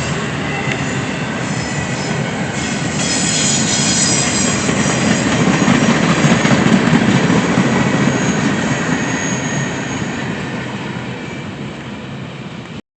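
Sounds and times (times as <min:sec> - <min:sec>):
faint high wheel squeal: 0:00.0 - 0:06.0, 0:07.7 - 0:11.6
train wheels rumbling on rail: 0:00.0 - 0:12.8.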